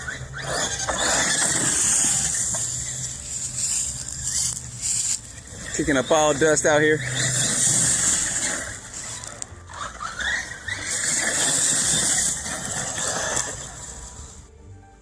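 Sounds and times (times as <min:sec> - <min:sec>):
electric motor whining: 0:00.0 - 0:14.5
tyres hissing over dirt: 0:00.6 - 0:09.5.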